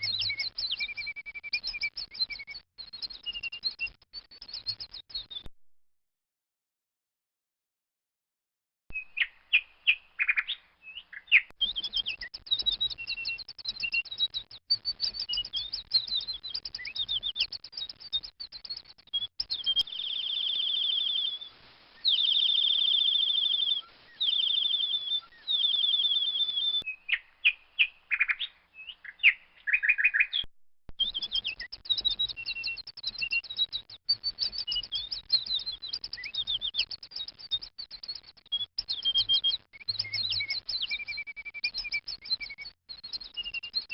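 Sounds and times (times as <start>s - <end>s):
baby bird chirping: 18.7s - 33.6s.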